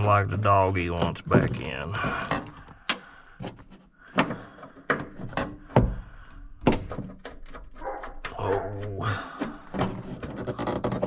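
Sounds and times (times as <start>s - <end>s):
door knocking and rattling: 4.2s - 8.7s.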